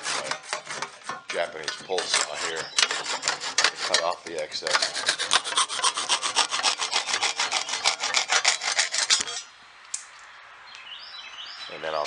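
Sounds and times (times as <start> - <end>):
pull saw cutting wood: 0.0 - 9.5.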